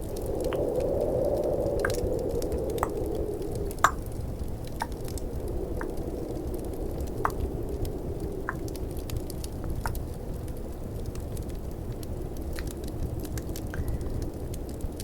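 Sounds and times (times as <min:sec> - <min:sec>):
fireplace crackling: 0:00.0 - 0:15.0
snowstorm ambience: 0:00.0 - 0:15.0.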